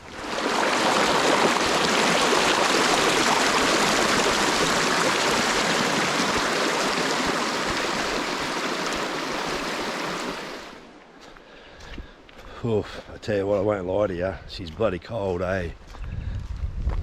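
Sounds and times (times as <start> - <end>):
heavy rain falling: 0.0 - 10.8.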